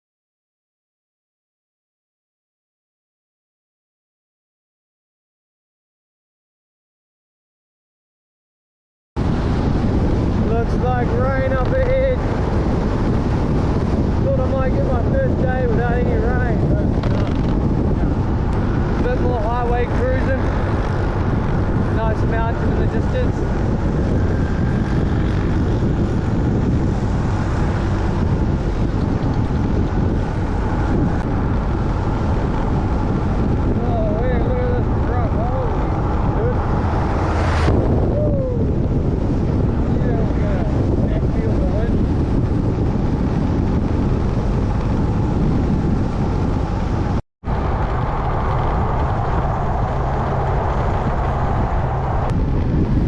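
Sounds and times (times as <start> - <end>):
motorbike engine drone: 9.2 - 53.0
road noise: 9.2 - 53.0
wind rushing over microphone: 9.2 - 53.0
motorbike engine: 41.5 - 53.0.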